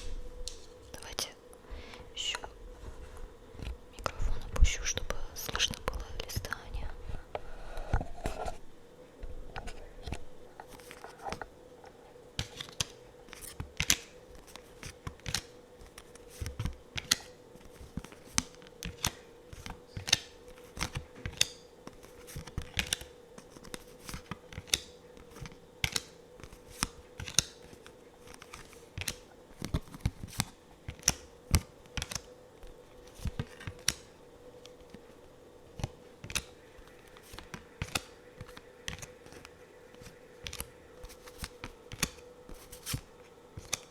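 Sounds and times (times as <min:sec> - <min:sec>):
faint steady hum: 0:00.0 - 0:43.9
cards clicking and snapping: 0:12.4 - 0:35.0, 0:35.7 - 0:43.9.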